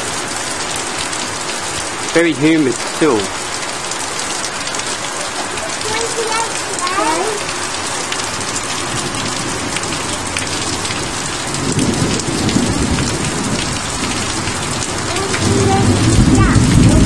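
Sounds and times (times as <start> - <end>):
heavy rain pouring: 0.0 - 17.0
low rumble of thunder: 8.3 - 17.0.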